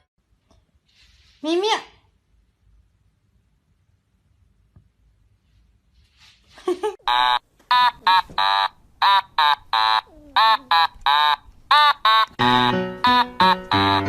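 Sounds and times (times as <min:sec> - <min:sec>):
high-pitched vocal notes: 0:09.8 - 0:11.1.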